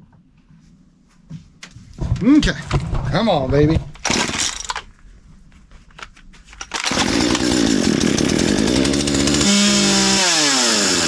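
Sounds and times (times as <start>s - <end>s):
chainsaw pull cord clicks: 6.6s - 9.5s
chainsaw running loudly: 6.8s - 11.0s.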